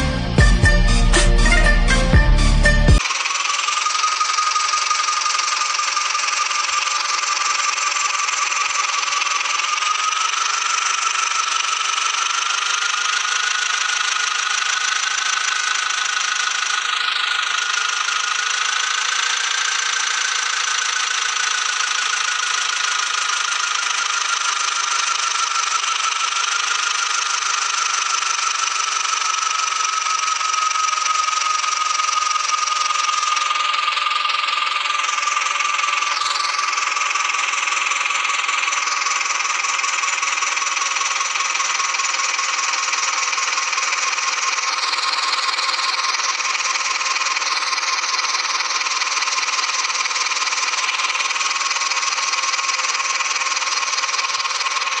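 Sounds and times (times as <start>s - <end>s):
high whine dropping in pitch: 0.0s - 3.0s
tractor engine running: 0.0s - 55.0s.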